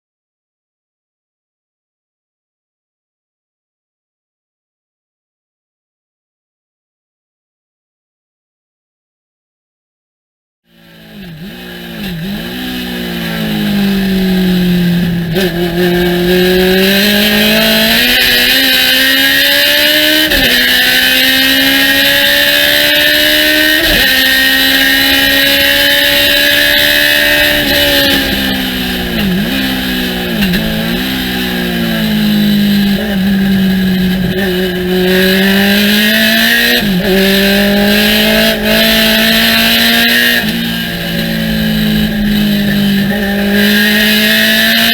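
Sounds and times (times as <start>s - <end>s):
race car engine at full throttle: 10.7s - 44.9s.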